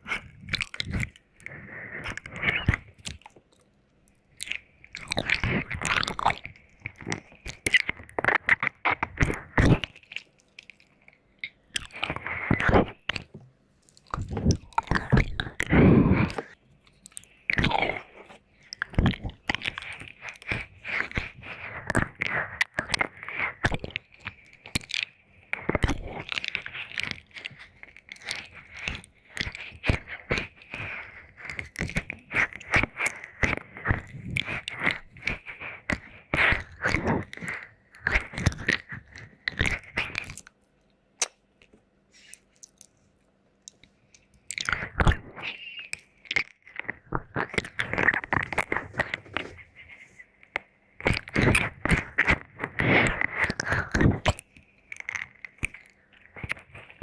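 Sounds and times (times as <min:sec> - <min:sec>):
wet licking and lip smacking: 0:43.7 - 0:49.6.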